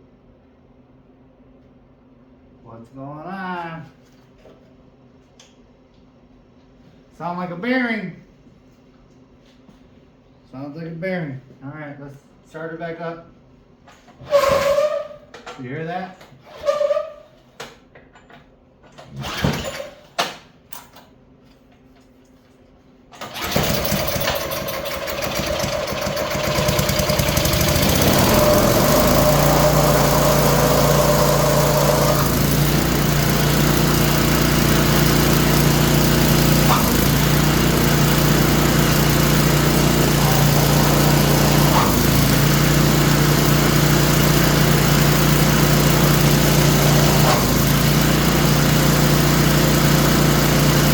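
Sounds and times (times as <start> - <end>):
small engine starting and running: 23.2 - 50.9.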